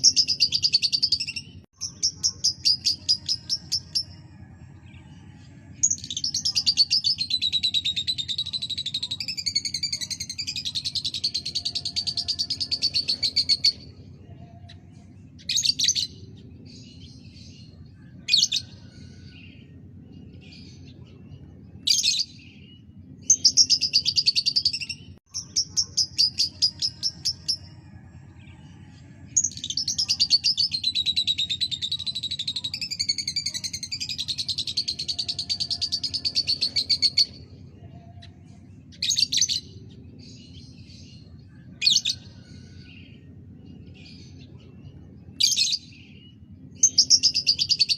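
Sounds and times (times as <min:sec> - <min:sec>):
lovebird chirping and trilling: 0:00.0 - 0:04.2, 0:05.8 - 0:13.8
faint low hum: 0:00.0 - 0:47.9.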